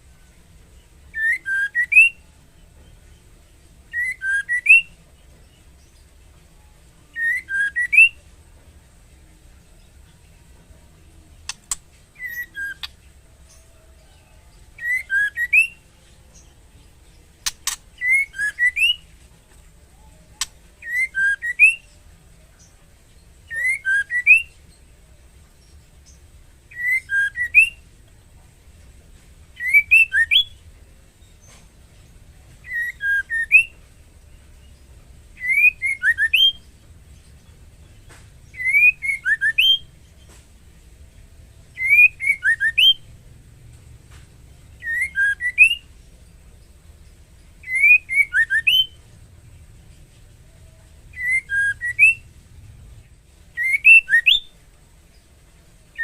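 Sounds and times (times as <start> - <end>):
sharp clicks: 11.4 - 11.9, 17.4 - 18.0
bird whistled call: 12.2 - 13.0, 32.6 - 33.7, 35.4 - 36.6, 38.5 - 39.9, 41.8 - 43.0, 44.8 - 45.9, 47.6 - 49.0, 51.1 - 52.3, 53.6 - 54.5.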